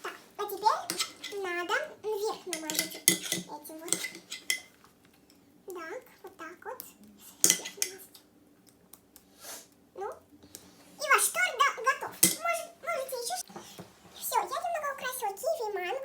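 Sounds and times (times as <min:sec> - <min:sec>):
cutlery clinking on plates: 0:00.9 - 0:01.4, 0:02.5 - 0:04.8, 0:07.4 - 0:08.0, 0:12.2 - 0:12.4.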